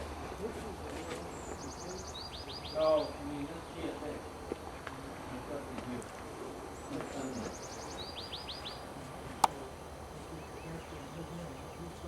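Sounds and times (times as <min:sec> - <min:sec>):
songbird singing: 0:01.0 - 0:04.0, 0:06.8 - 0:12.0.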